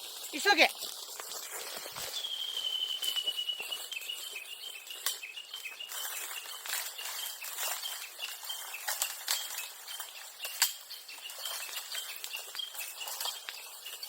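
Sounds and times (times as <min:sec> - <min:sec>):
background hiss: 0:00.0 - 0:14.0
bird calling high notes: 0:02.0 - 0:08.9.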